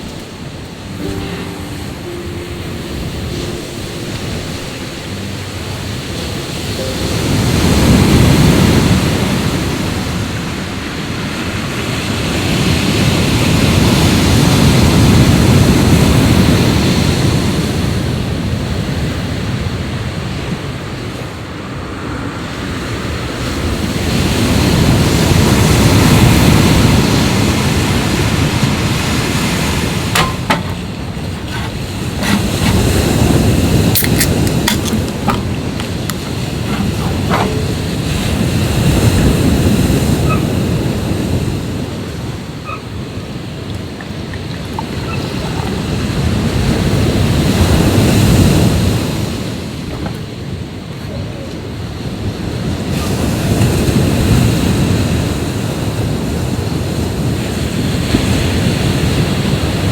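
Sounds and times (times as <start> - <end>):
sea waves washing on shore: 21.8 - 59.9.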